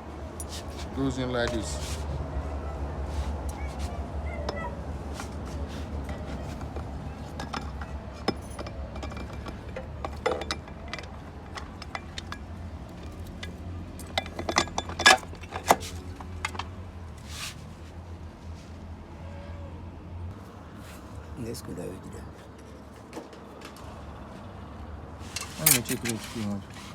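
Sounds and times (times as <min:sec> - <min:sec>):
metal parts clinking: 0:06.0 - 0:16.8, 0:25.3 - 0:26.4.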